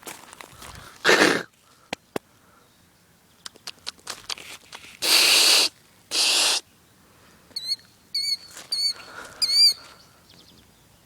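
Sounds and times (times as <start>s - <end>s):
loud hissing bursts: 5.0s - 6.6s
bird alarm calls: 7.6s - 10.0s.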